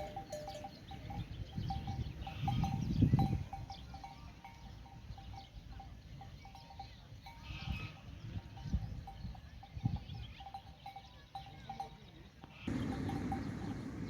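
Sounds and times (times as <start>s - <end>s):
livestock bells clinking: 0.0s - 14.0s
low rumble: 12.7s - 14.0s.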